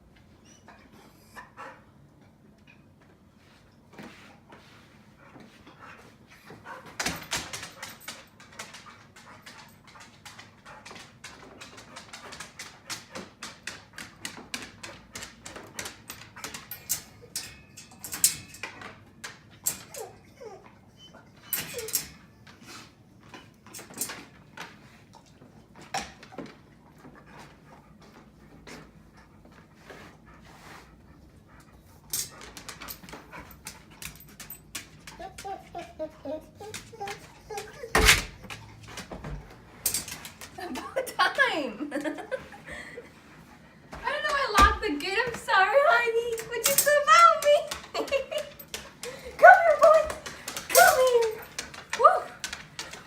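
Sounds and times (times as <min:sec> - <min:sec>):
dog claws clicking and scuffling: 0:05.7 - 0:20.8, 0:31.2 - 0:41.0, 0:46.2 - 0:53.0.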